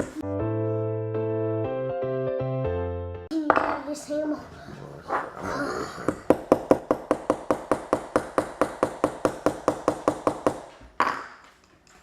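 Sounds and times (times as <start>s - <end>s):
hammer tapping nail into wood: 6.1s - 11.5s.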